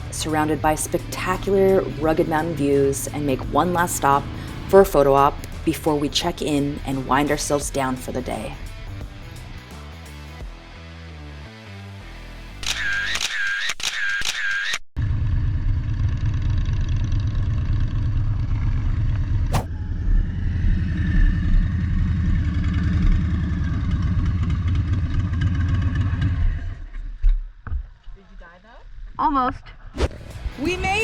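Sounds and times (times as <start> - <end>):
motorcycle engine rumbling: 0.0 - 9.2, 15.1 - 27.0.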